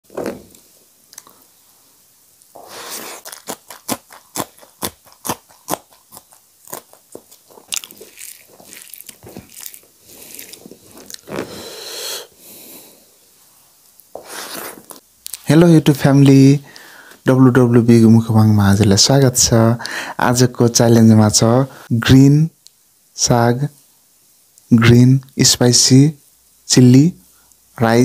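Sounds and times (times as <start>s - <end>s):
sharp lip smacks: 2.5s - 11.5s
wet chewing: 2.6s - 11.4s.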